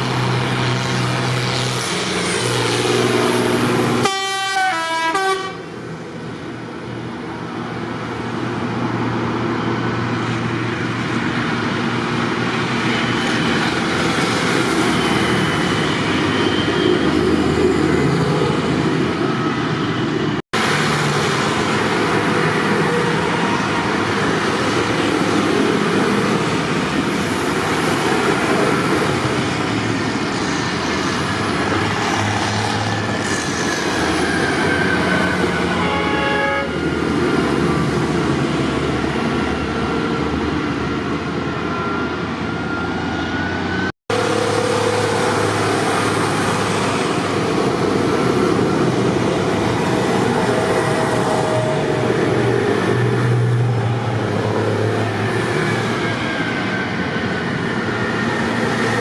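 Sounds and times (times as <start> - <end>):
horn toot: 4.0 - 5.6, 35.1 - 36.9
tractor engines running: 43.5 - 59.0.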